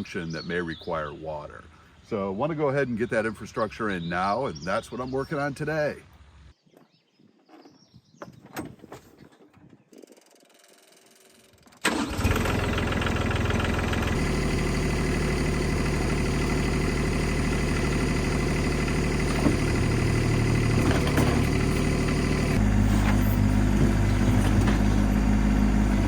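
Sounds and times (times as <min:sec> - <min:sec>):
engine starting and running: 0:10.2 - 0:26.0.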